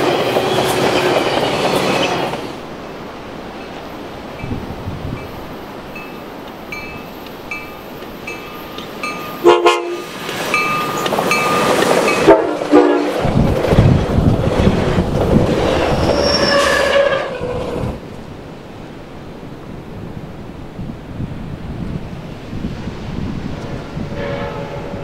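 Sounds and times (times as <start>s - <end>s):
train wheels clacking: 0.0s - 2.6s, 6.0s - 17.4s
train bell dinging: 5.2s - 12.5s
train horn blasts: 9.4s - 10.2s, 12.1s - 13.2s, 24.0s - 25.0s
high wheel squeal: 15.6s - 18.0s.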